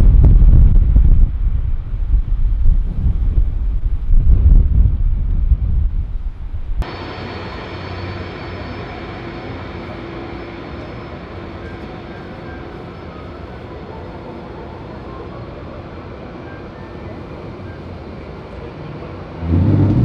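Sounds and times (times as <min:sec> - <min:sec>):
wind buffeting microphone: 0:00.0 - 0:06.9
jet airliner engine noise: 0:00.0 - 0:20.0
faint high whine: 0:06.7 - 0:20.0.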